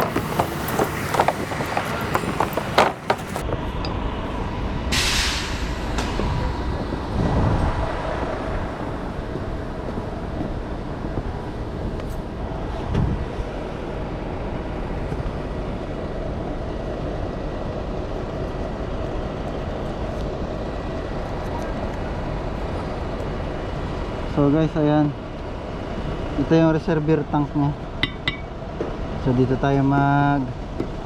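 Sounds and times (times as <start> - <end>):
mechanical engine rumble: 0.0 - 3.4.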